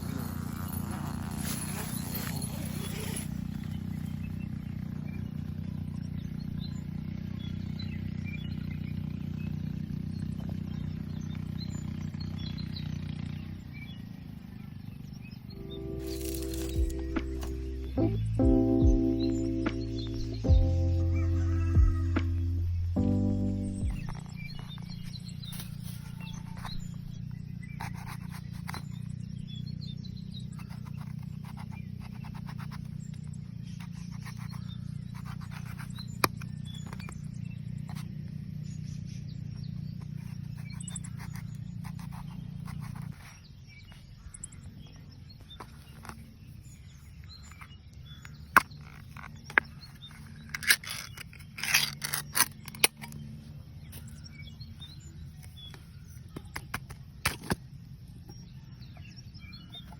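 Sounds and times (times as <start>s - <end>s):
scraping and clattering: 0.3s - 3.9s
steady low rumble: 15.5s - 27.8s
small chirps: 15.5s - 59.9s.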